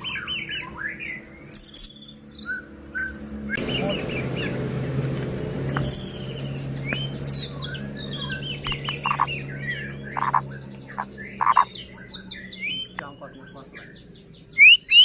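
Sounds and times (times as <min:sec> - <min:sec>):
bird singing whistled song: 0:00.0 - 0:15.0.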